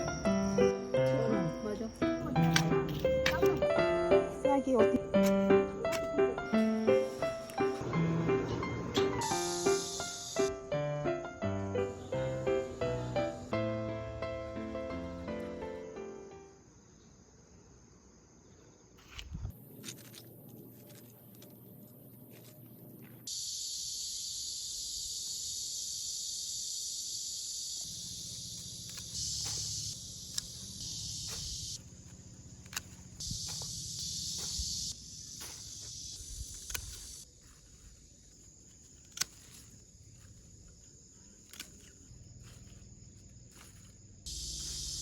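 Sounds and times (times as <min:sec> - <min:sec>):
crickets chirring: 0:00.0 - 0:45.0
sharp clicks: 0:36.4 - 0:37.2.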